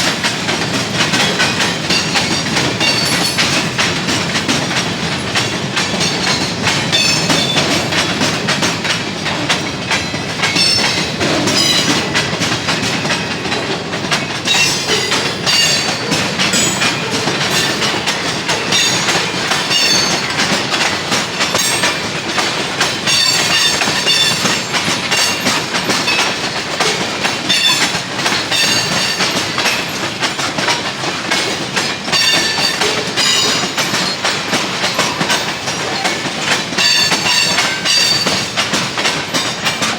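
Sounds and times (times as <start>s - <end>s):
train wheels clacking: 0.0s - 39.9s
wheel squeals: 14.5s - 30.2s, 31.8s - 39.9s.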